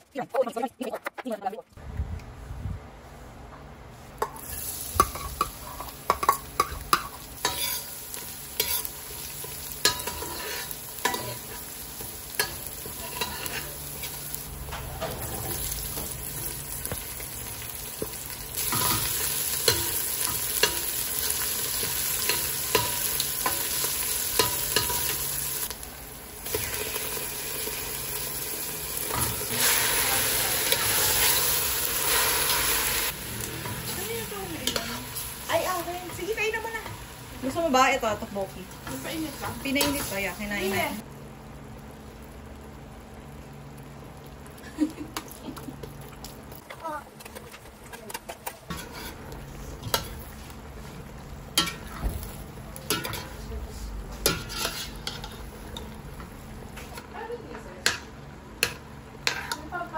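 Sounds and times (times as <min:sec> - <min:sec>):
vegetables sizzling in oil: 0:04.2 - 0:47.3, 0:48.4 - 0:59.9
metal spoon scraping a pot: 0:05.0 - 0:07.9, 0:09.9 - 0:11.5, 0:12.4 - 0:13.8, 0:48.5 - 0:49.2, 0:54.2 - 0:55.5.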